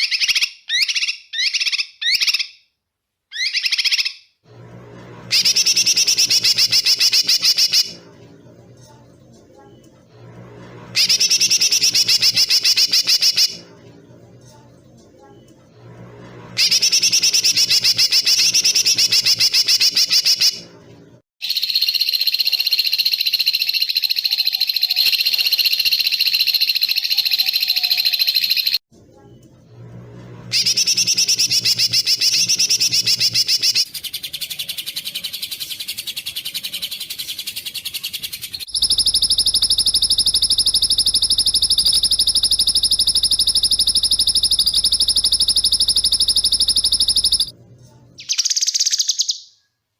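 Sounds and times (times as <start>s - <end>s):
songbirds giving rapid trills: 38.1s - 47.5s.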